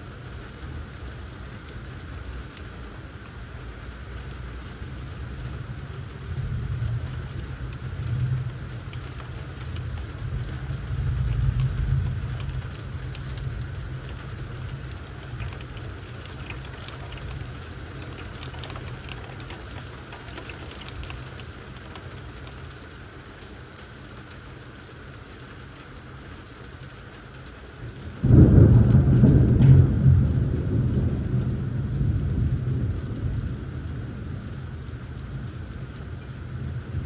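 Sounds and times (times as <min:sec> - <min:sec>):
steady rain: 0:00.0 - 0:37.0
thunder rumble: 0:04.1 - 0:22.7, 0:27.6 - 0:37.0
loud thunderclap: 0:06.2 - 0:20.1, 0:28.0 - 0:37.0.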